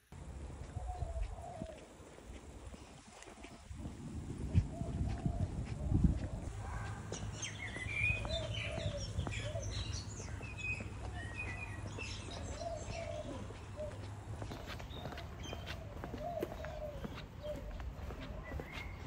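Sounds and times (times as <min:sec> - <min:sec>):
birds chirping and calling: 0:04.4 - 0:19.0.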